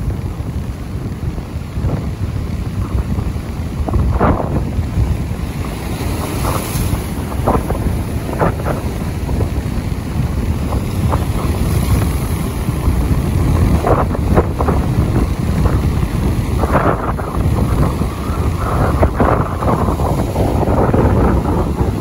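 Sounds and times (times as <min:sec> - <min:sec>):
rain: 0:00.0 - 0:22.0
wind buffeting microphone: 0:00.0 - 0:22.0.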